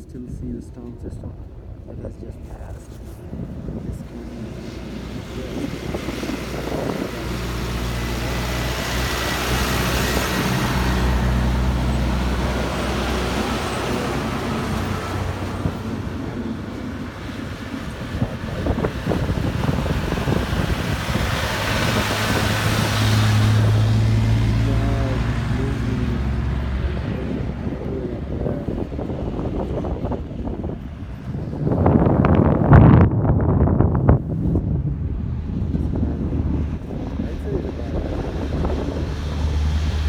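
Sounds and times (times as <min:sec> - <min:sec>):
wind rushing over microphone: 0:00.0 - 0:40.0.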